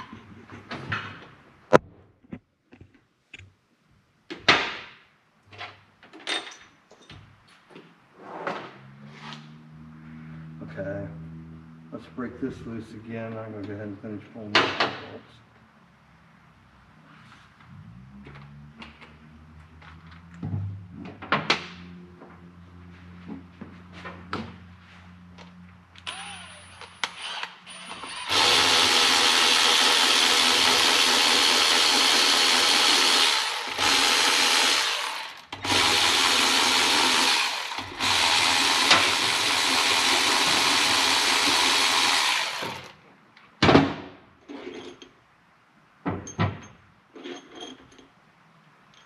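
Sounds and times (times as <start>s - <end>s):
power tool running: 26.0s - 43.0s.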